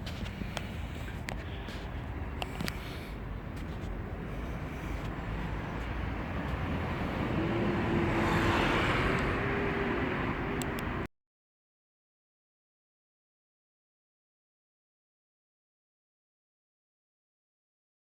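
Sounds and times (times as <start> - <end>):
vehicle engine running: 0.0 - 11.1.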